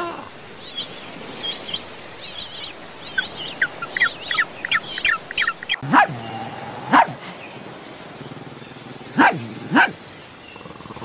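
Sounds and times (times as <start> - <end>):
high-pitched bird chirps: 0.7 - 6.1.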